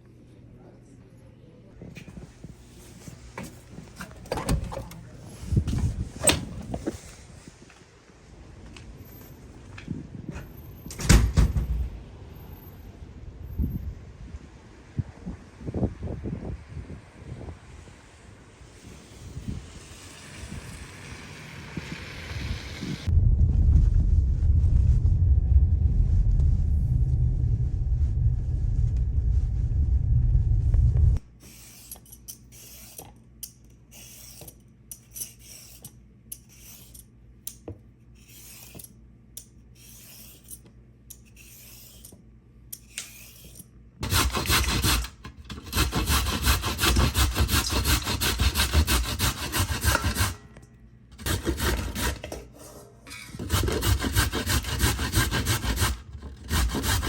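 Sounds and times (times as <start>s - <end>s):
low rumble: 22.2s - 31.3s
carrots being grated: 44.0s - 50.4s, 51.2s - 52.4s, 53.2s - 57.0s.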